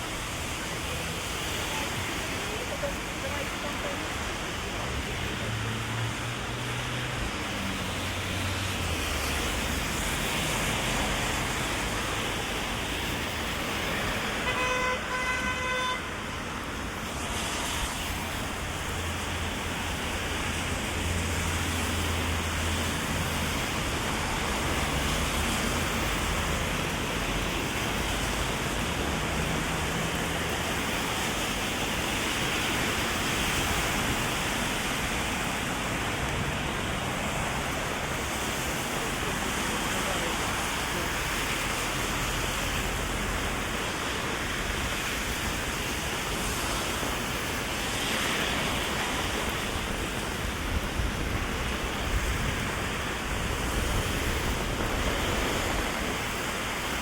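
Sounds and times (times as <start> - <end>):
cars on wet road: 0.0 - 57.0
heavy rain falling: 0.0 - 57.0
car horn toots: 14.4 - 16.1.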